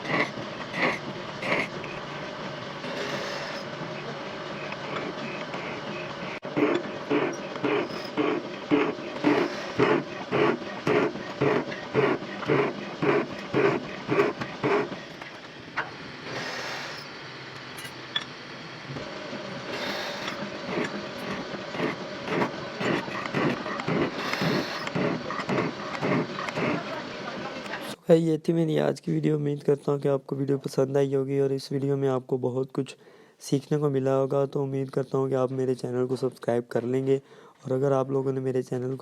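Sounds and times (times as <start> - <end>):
metal lathe cutting: 0.0 - 27.9.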